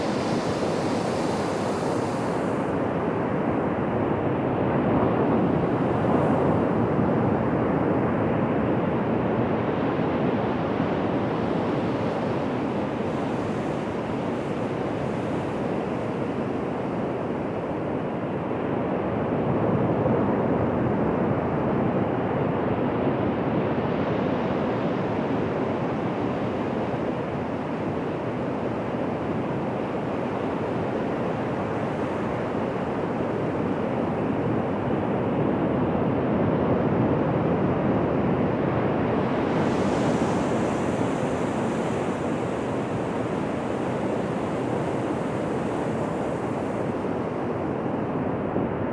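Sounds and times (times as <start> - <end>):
ocean waves breaking on beach: 0.0 - 3.6, 38.8 - 48.0.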